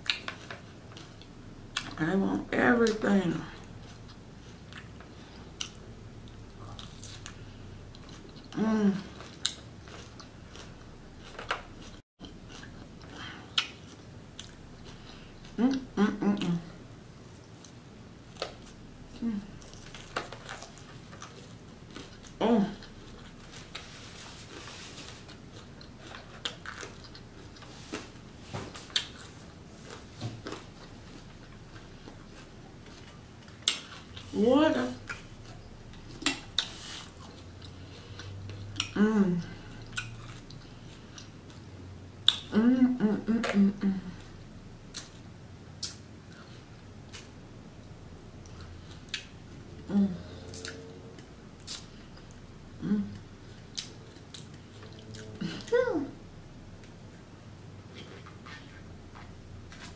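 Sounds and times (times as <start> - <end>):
crunchy salad chewing: 0.0 - 2.0, 3.6 - 15.8, 17.3 - 34.4, 39.6 - 42.5, 44.2 - 55.7.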